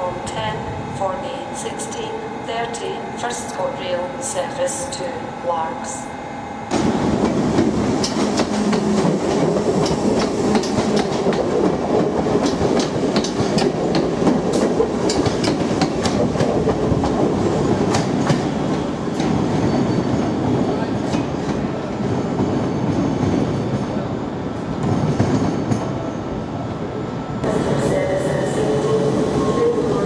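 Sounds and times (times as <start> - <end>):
train rumble: 6.7 - 30.0.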